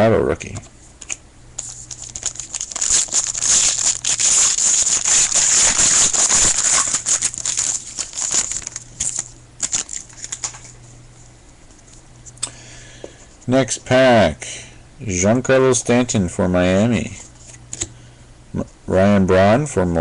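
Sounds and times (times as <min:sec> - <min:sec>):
cards being handled: 0:00.5 - 0:10.8
wrapper tearing and crinkling: 0:01.6 - 0:10.7.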